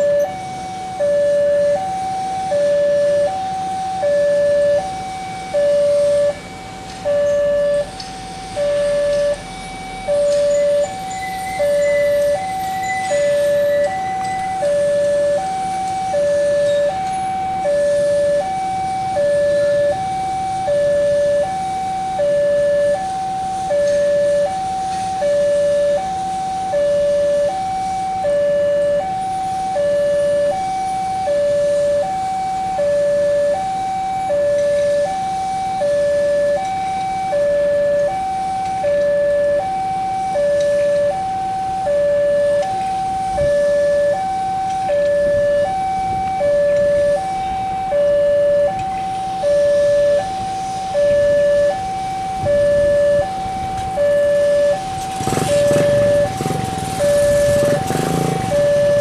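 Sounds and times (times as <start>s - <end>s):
level crossing two-tone alarm: 0.0s - 59.0s.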